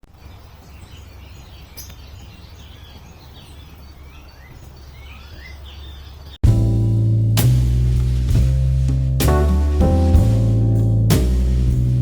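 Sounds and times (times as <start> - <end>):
small birds chirping: 0.0 - 6.4
steady low rumble: 6.4 - 12.0.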